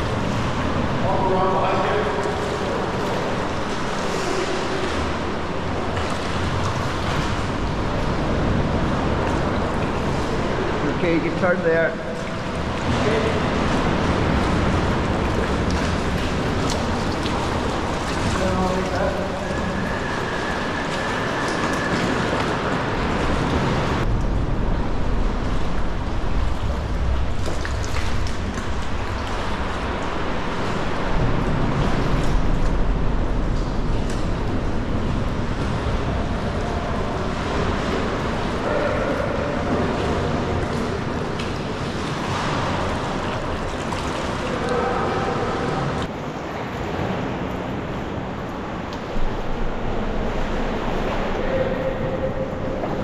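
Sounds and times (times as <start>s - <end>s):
water slapping around kayak: 0.0s - 53.0s
wind rumbling on microphone: 12.0s - 53.0s.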